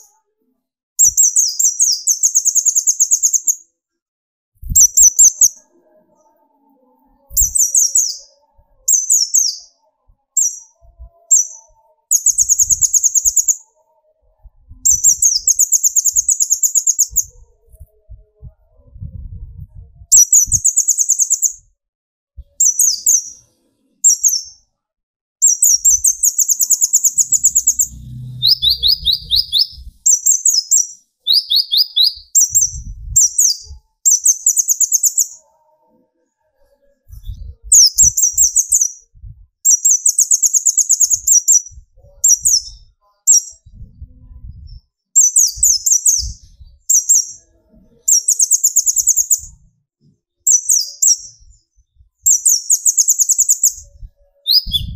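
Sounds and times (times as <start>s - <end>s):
bird singing fast trills: 1.0s - 3.6s, 4.7s - 14.0s, 14.8s - 17.4s, 20.1s - 21.6s, 22.6s - 24.6s, 25.4s - 35.5s, 37.5s - 39.0s, 39.7s - 43.7s, 48.1s - 49.6s, 52.3s - 54.9s.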